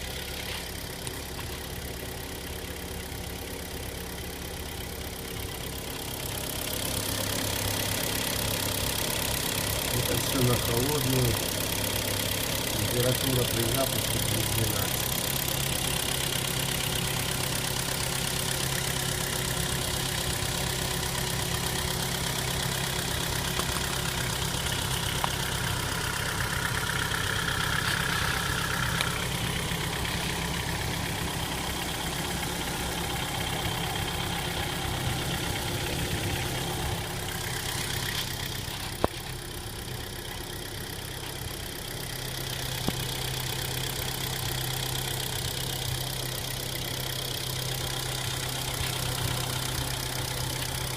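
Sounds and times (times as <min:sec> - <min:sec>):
cold engine idling: 0:00.0 - 0:50.9.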